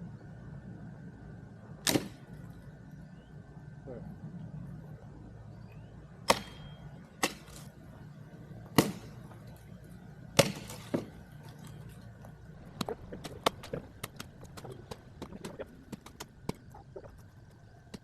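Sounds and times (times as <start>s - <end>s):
axe chopping wood: 1.8s - 2.2s, 6.3s - 7.7s, 8.7s - 9.4s, 10.4s - 11.2s.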